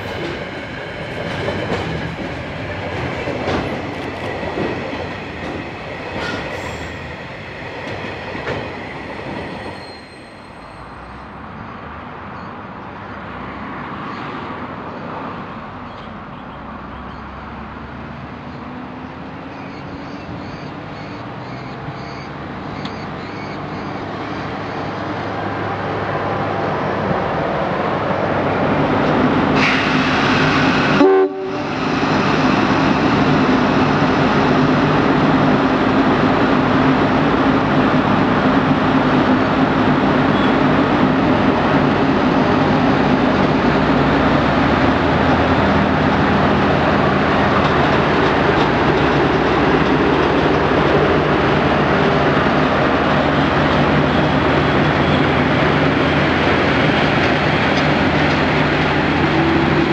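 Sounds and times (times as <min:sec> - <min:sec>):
train wheel noise: 0:00.0 - 0:11.4, 0:24.1 - 0:59.9
train passing: 0:00.0 - 0:59.9
train horn blast: 0:30.9 - 0:31.8.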